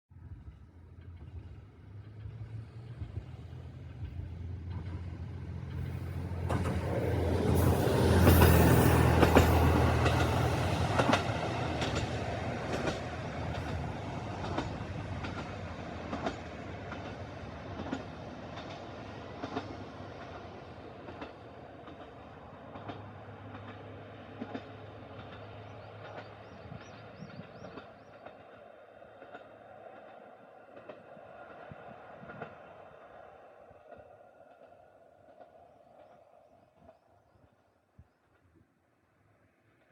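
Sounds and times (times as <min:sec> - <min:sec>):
train wheels clacking over rail joints: 0:04.0 - 0:28.6.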